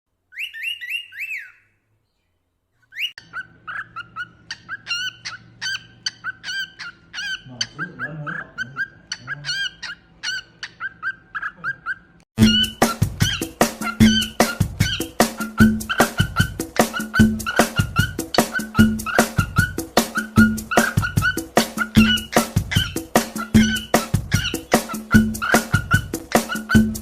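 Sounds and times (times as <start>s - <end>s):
cockatiel chirping: 0.3s - 2.2s, 2.8s - 27.0s
loud music: 12.4s - 27.0s.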